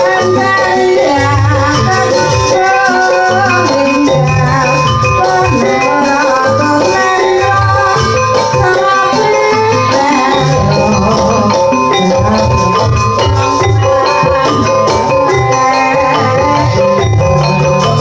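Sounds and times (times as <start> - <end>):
light percussion: 0.0 - 18.0
metallophones ringing melodic notes: 0.0 - 18.0.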